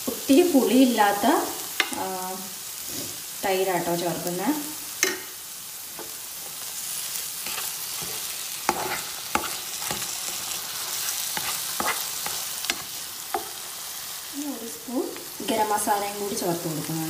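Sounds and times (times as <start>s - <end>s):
frying hiss: 0.0s - 17.0s
spatula scraping a pan: 7.3s - 13.9s.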